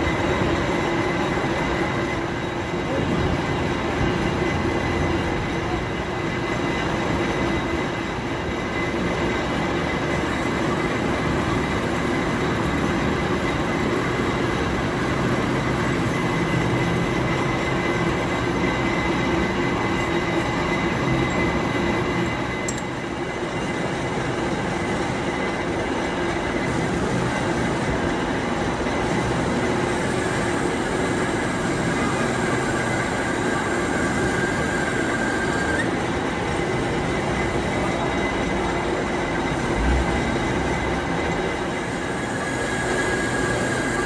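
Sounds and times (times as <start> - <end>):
high-pitched machine whine: 0.0 - 44.0
workshop machinery running: 0.0 - 44.0
low hum: 39.6 - 41.4.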